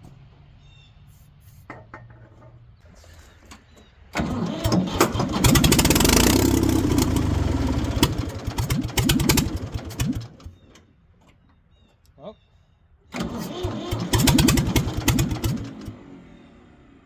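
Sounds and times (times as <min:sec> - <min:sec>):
diesel engine cranking and running: 0:04.1 - 0:10.9, 0:13.1 - 0:17.0.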